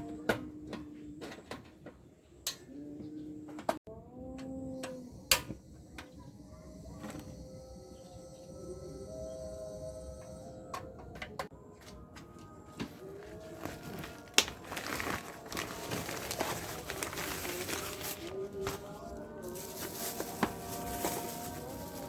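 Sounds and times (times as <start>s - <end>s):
plastic packaging crinkling: 13.1s - 22.0s.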